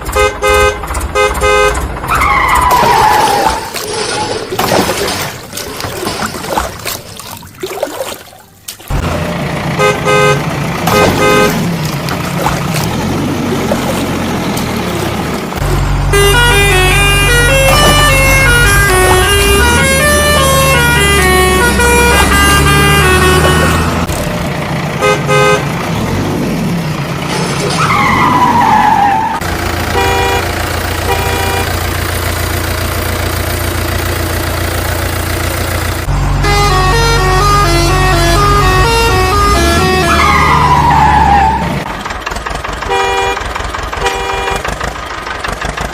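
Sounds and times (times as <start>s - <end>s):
vehicle horn toots: 0.0s - 2.2s, 9.8s - 11.7s, 16.0s - 24.1s, 25.0s - 25.7s, 29.9s - 31.8s, 36.4s - 41.4s, 42.8s - 44.8s
engine hum: 0.0s - 45.9s
musical horn playing a tune: 16.0s - 24.0s, 31.1s - 31.7s, 36.4s - 40.7s.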